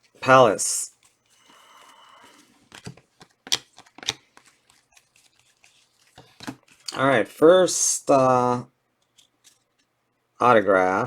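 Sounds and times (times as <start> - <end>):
pack wrapper rustling: 0.9 - 7.0
cards clicking and snapping: 1.0 - 7.0.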